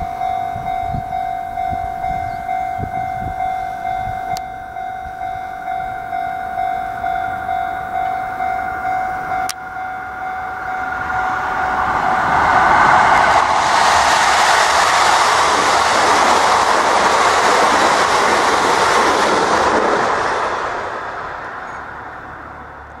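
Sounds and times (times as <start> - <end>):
steady tones: 0.0 - 23.0
train passing at speed: 0.0 - 23.0.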